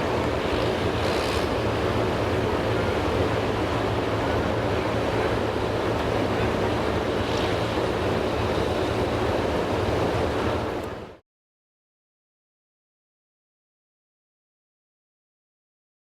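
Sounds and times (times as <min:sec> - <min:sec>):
truck diesel engine running: 0:00.0 - 0:11.2.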